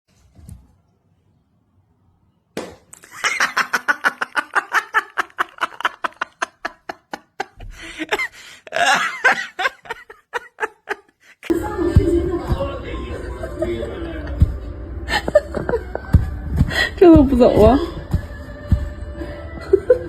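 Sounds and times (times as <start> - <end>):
person laughing hard: 3.0 - 11.5, 13.2 - 16.9, 19.6 - 20.0.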